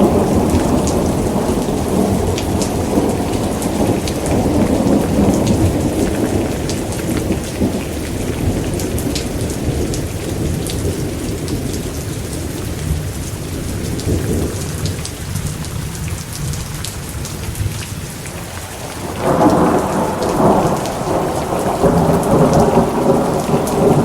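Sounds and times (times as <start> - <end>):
rolling thunder: 0.0 - 13.1, 18.8 - 24.0
heavy rain pattering: 0.0 - 24.0.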